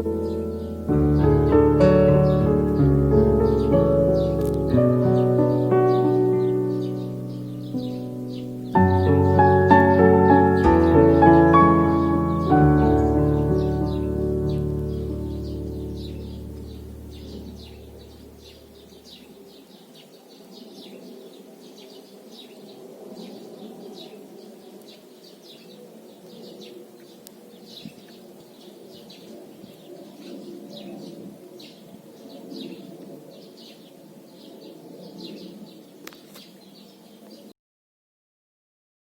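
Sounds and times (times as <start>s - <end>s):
background music: 0.0s - 18.8s
small birds chirping: 0.0s - 37.5s.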